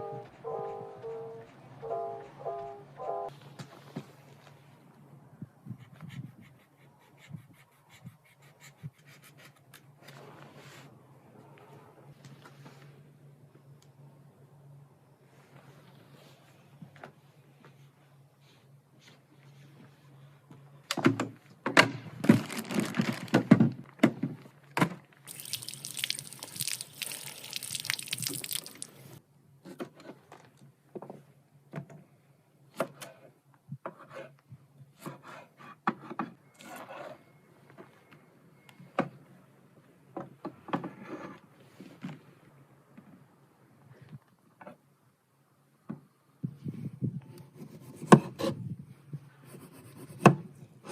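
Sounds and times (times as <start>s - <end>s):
pouring water: 25.3s - 29.2s.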